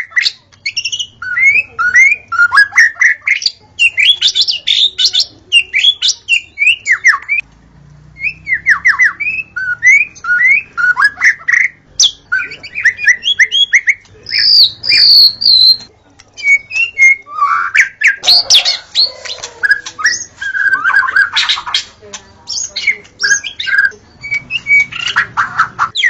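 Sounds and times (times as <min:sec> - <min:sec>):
bird singing whistled song: 0:00.0 - 0:07.4, 0:08.2 - 0:19.1, 0:19.7 - 0:21.8, 0:22.5 - 0:26.0.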